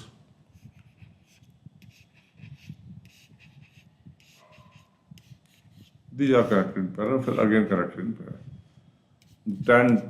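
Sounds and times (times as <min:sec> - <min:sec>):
pen scratching on paper: 0:00.6 - 0:07.5.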